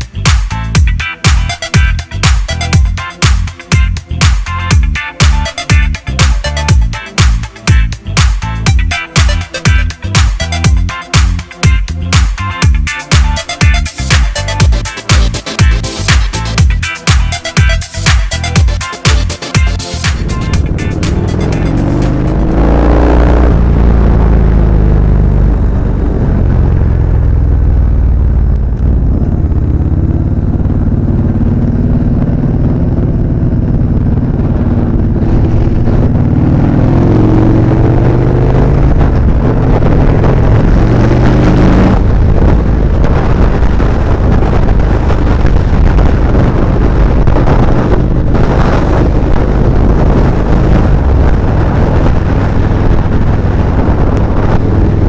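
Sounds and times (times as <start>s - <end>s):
motorcycle engine running: 0.0s - 55.0s
wind rumble on microphone: 20.4s - 55.0s.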